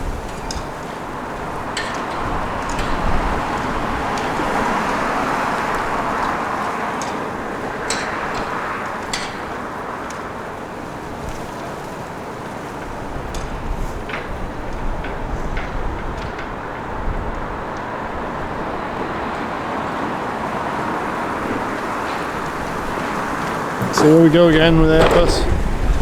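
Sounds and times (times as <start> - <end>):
road traffic passing: 0.0 - 26.0.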